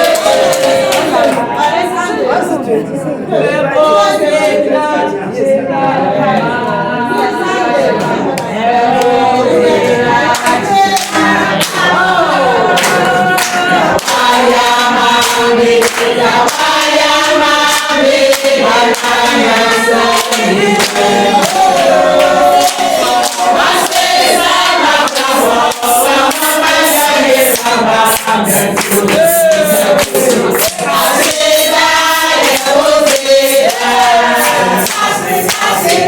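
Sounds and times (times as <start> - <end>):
group of voices singing: 0.0 - 36.0.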